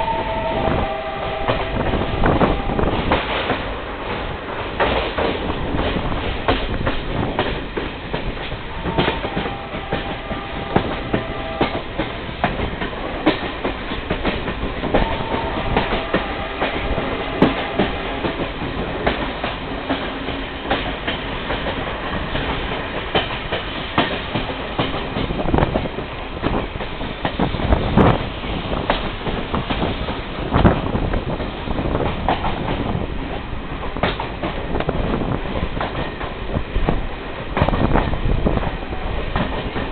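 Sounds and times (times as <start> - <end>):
thin high tone: 0.0 - 1.7
train rumble: 0.0 - 39.9.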